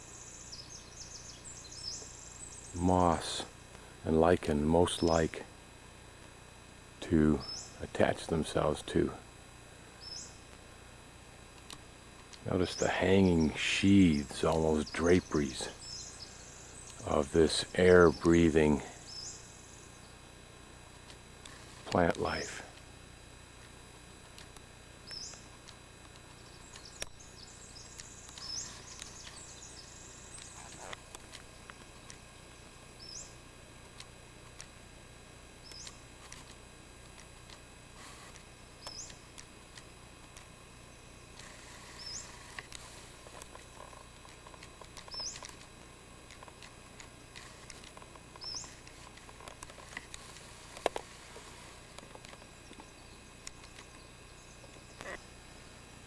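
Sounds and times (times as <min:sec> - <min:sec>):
soft high bird twittering: 0:00.0 - 0:03.3, 0:07.3 - 0:07.9, 0:10.0 - 0:10.4, 0:12.6 - 0:20.2, 0:25.0 - 0:25.5, 0:26.4 - 0:31.0, 0:33.0 - 0:33.4, 0:35.6 - 0:36.0, 0:38.8 - 0:39.2, 0:41.8 - 0:42.4, 0:45.1 - 0:45.5, 0:48.4 - 0:48.8.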